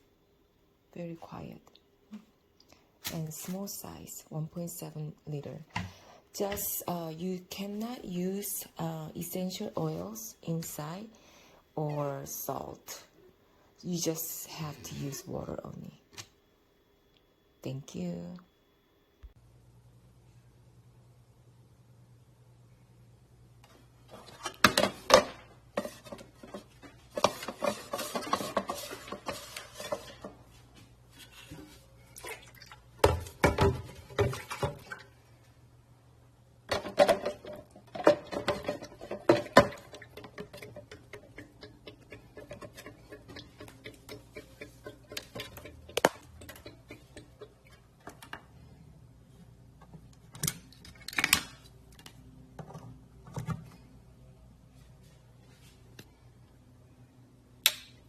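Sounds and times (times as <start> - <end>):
hard objects clattering and knocking: 36.7 - 48.4.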